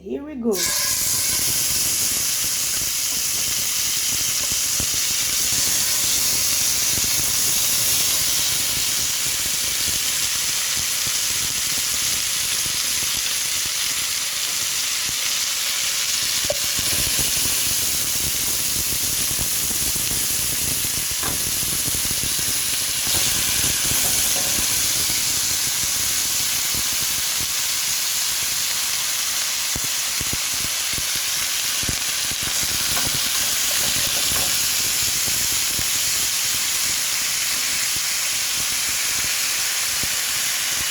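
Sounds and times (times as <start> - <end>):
chicken wings sizzling in oil: 0.5 - 40.9.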